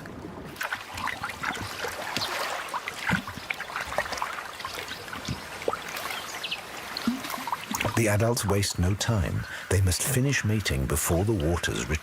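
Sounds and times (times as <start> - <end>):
fish splashing in shallow water: 0.0 - 8.2.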